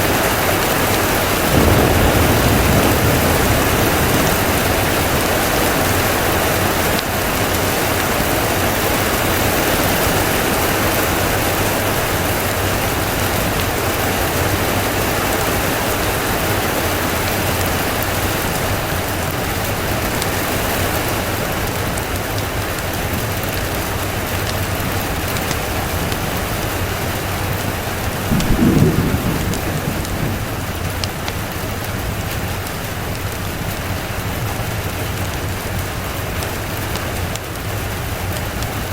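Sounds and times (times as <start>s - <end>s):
steady rain falling: 0.0s - 38.9s
low rumble of thunder: 0.6s - 10.0s, 26.3s - 32.6s.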